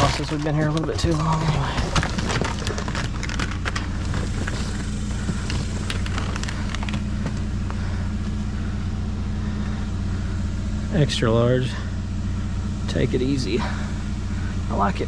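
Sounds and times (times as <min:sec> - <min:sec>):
clicks and rattles of handled items: 0:00.0 - 0:07.4
vehicle engine idling: 0:00.0 - 0:15.0.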